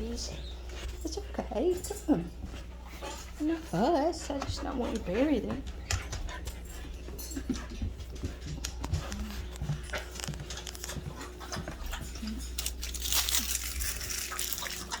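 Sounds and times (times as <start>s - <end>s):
dog panting: 0.0s - 12.8s
small clicks and rustles: 4.2s - 15.0s.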